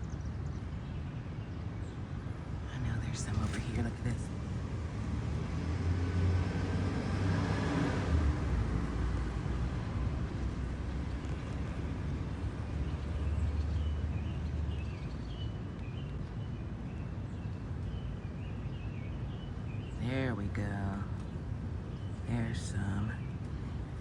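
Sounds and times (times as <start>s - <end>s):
road traffic rumble: 0.0s - 24.0s
vehicle passing: 2.7s - 14.0s.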